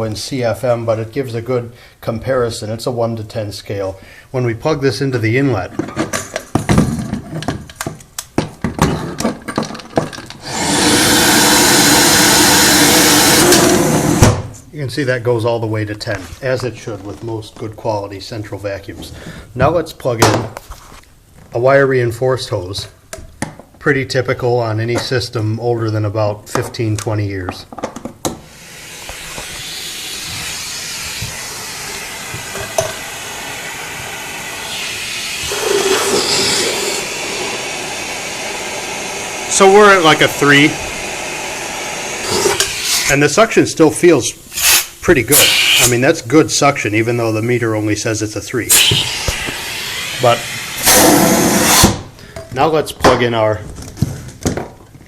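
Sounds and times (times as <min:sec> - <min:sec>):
vacuum air rushing with hum: 0:10.4 - 0:14.4, 0:28.5 - 0:47.1, 0:48.6 - 0:52.2.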